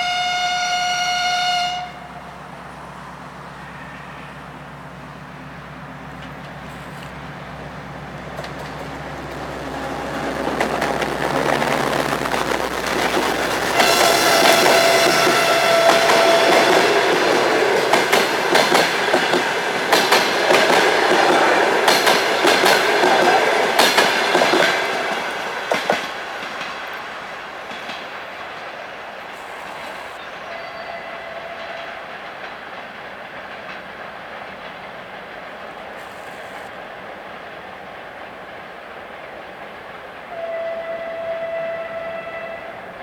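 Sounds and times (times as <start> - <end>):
faint ringing of wheel and rail: 3.5 - 4.6
train wheels clacking over joints: 6.1 - 30.2, 31.3 - 36.7.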